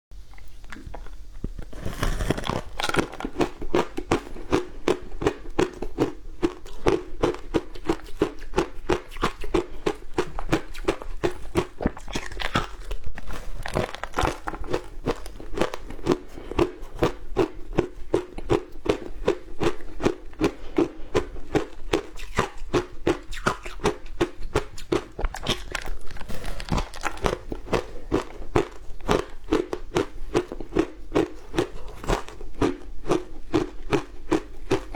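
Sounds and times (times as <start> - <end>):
person crunching ice: 1.6 - 17.1, 24.7 - 34.9.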